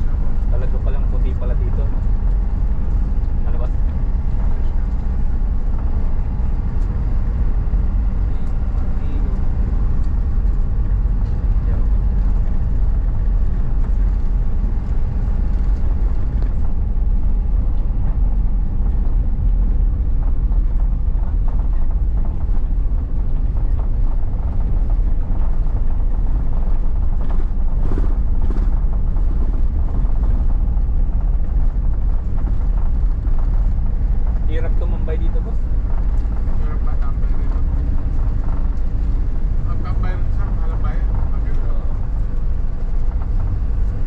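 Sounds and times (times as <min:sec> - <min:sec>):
car engine rumble: 0:00.0 - 0:44.0.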